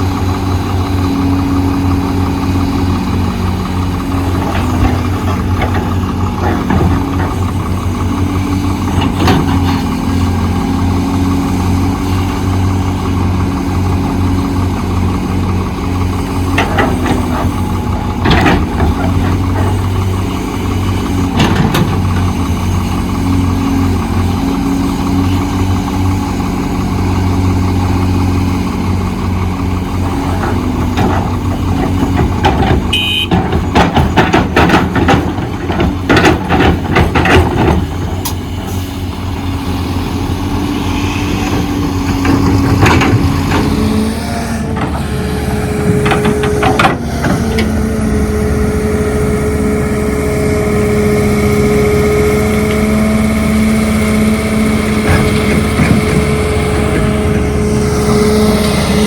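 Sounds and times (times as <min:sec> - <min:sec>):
heavy diesel engine running: 0:00.0 - 0:59.0
sharp knocks and clanks: 0:16.5 - 0:20.2, 0:21.2 - 0:23.0, 0:30.3 - 0:38.4, 0:41.4 - 0:44.0, 0:45.9 - 0:47.7.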